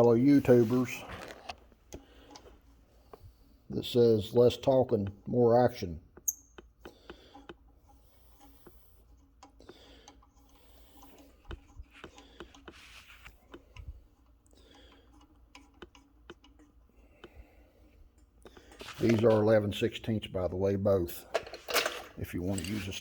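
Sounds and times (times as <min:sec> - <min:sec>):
soft rustling: 0:00.0 - 0:01.9, 0:11.8 - 0:14.1, 0:18.6 - 0:19.6
metallic clicks and taps: 0:06.1 - 0:07.6.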